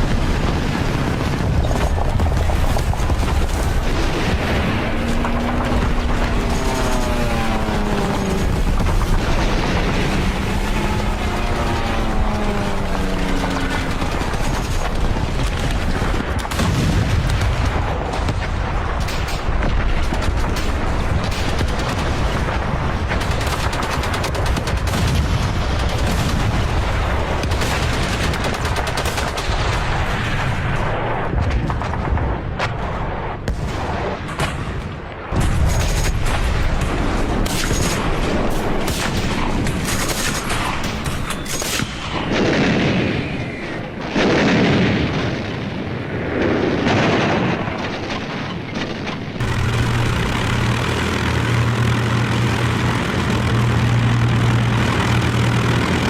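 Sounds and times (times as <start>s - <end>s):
booms: 0.0s - 23.5s, 29.4s - 56.0s
gunfire and machine-gun bursts: 0.0s - 31.0s, 31.6s - 45.4s, 46.8s - 56.0s
low engine drone: 2.1s - 17.0s, 49.4s - 56.0s.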